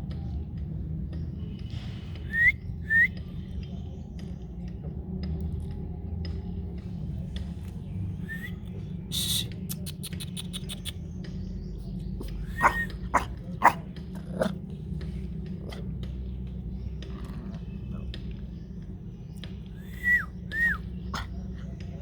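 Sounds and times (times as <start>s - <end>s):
puppies whimpering and yelping: 12.2s - 14.5s, 19.8s - 22.0s.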